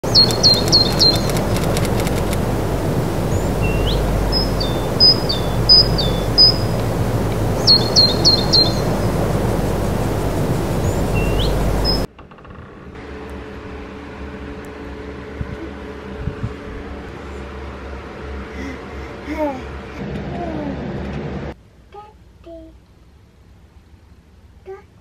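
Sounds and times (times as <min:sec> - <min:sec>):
birds chirping: 0:00.0 - 0:12.1
steady rushing background noise: 0:00.0 - 0:12.1.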